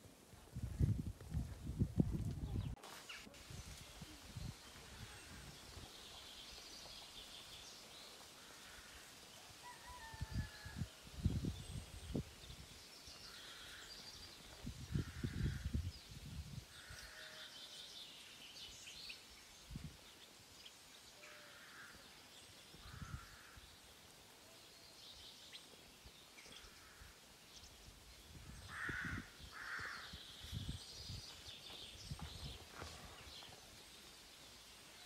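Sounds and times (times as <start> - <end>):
wind buffeting microphone: 0.4 - 2.8, 10.1 - 12.8, 14.4 - 16.8, 28.2 - 33.4.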